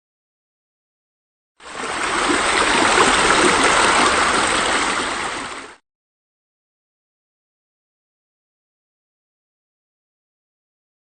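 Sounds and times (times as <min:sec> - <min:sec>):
water splashing into a pool: 0:01.6 - 0:05.8.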